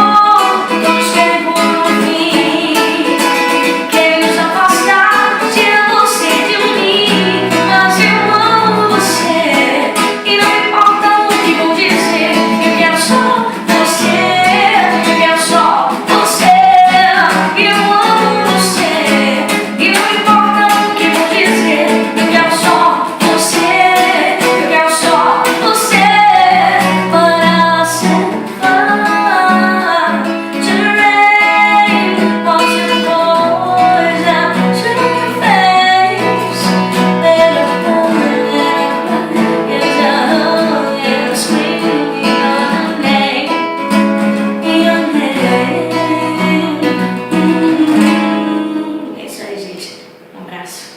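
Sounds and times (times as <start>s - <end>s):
woman singing pop ballad: 0.0s - 49.8s
strummed guitar: 0.0s - 50.6s.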